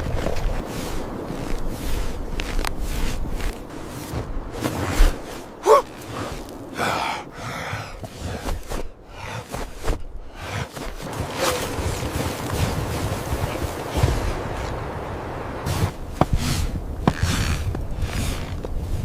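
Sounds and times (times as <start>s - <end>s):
short strained vocal sounds: 5.6s - 6.1s
person gasping for breath: 5.6s - 10.9s.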